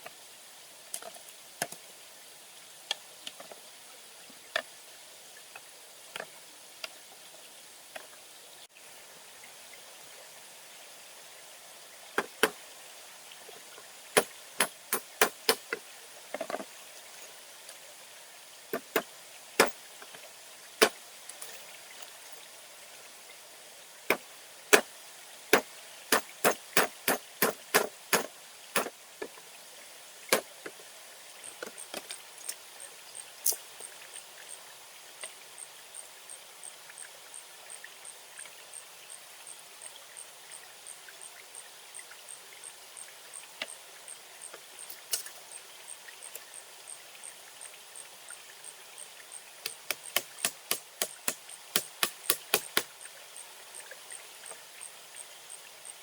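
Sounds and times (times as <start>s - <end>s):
sharp knocks: 25.6s - 28.9s.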